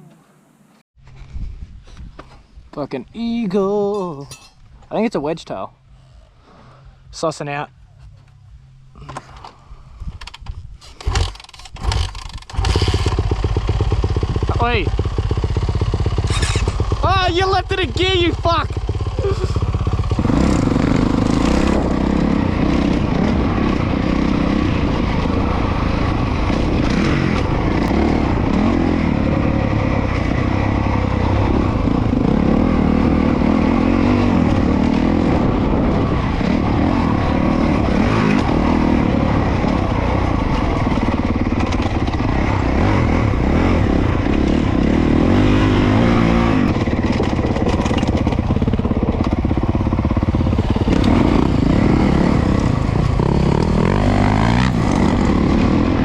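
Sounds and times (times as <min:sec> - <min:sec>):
motocross bike engine revving: 0:10.9 - 0:56.0.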